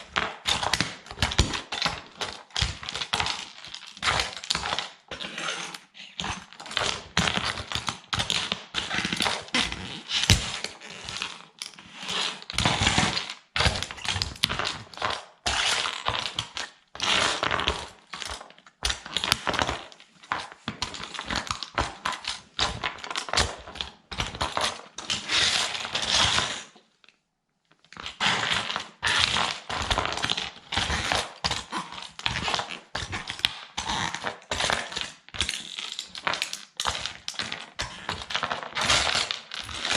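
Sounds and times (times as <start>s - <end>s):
plastic toy cracking underfoot: 12.6s - 26.2s, 27.9s - 39.9s.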